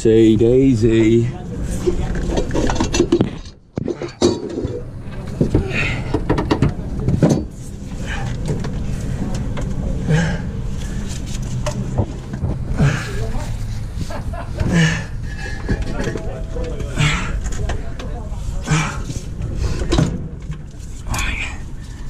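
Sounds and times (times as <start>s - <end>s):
steady low hum: 0.0s - 22.0s
metal tools clanking: 1.9s - 8.7s.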